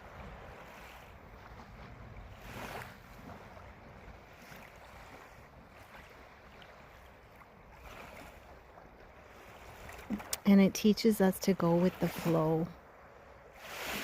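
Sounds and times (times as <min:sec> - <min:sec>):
gentle waves washing on beach: 0:00.0 - 0:14.0.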